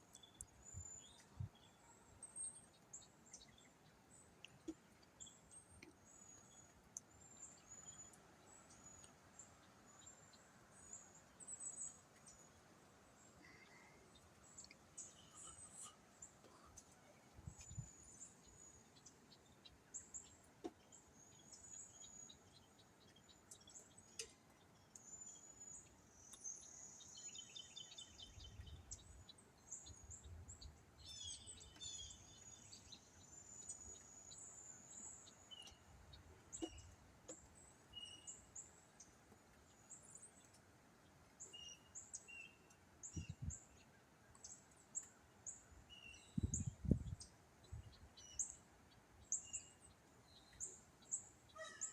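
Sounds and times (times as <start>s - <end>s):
birds chirping and trilling: 13.2s - 35.9s, 44.4s - 51.9s
wind rumbling on microphone: 43.1s - 43.6s, 46.3s - 48.1s.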